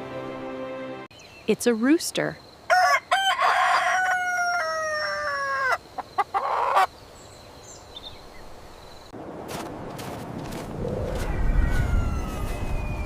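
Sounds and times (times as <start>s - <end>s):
rooster crowing: 2.7s - 5.8s, 11.1s - 13.0s.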